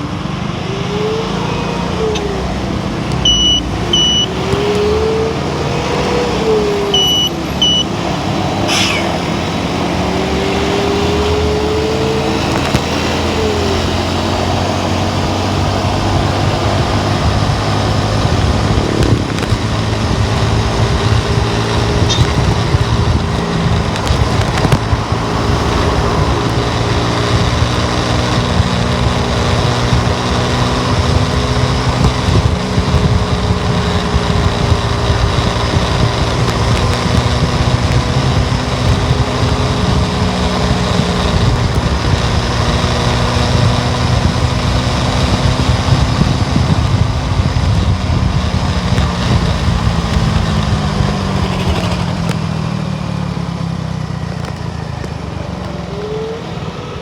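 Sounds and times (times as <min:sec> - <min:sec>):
car engine and road noise: 0:00.0 - 0:57.0
short high double beeps: 0:03.2 - 0:04.4, 0:06.8 - 0:08.0.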